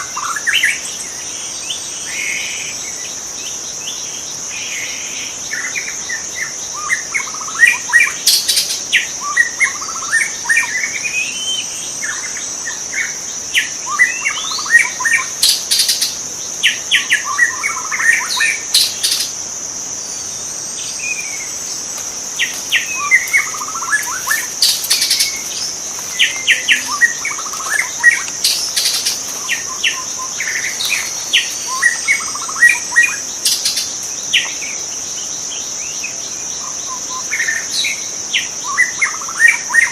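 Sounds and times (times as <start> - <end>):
high-pitched insect drone: 4.4 - 39.8
bird singing rapid varied notes: 20.4 - 34.8.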